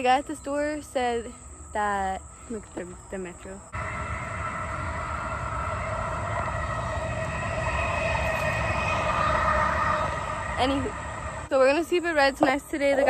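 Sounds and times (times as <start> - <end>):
train rumbling on tracks: 3.7 - 11.5
train whine: 3.7 - 11.6.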